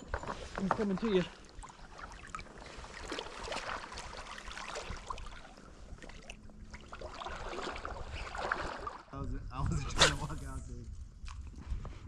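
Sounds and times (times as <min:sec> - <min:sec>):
river water splashing: 0:00.0 - 0:09.1.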